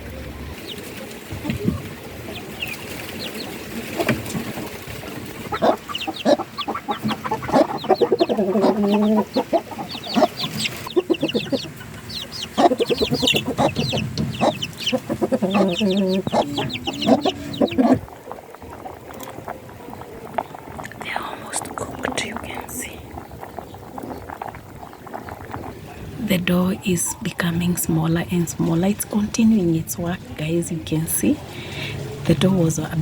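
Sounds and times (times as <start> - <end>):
chicken drawn-out calls: 0.0 - 20.9
chickens clucking: 0.0 - 33.0.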